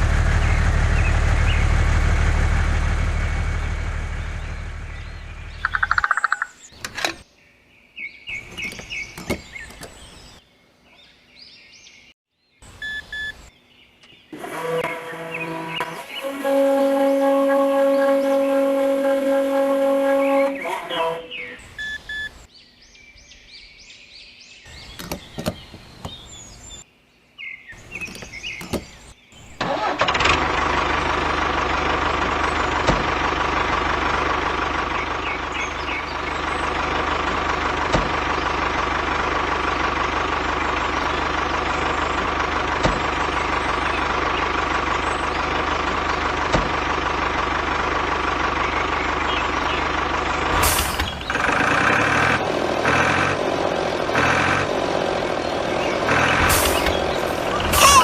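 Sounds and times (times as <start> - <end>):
engine-like running sound: 0.0 - 6.2, 14.3 - 21.6, 29.6 - 58.0.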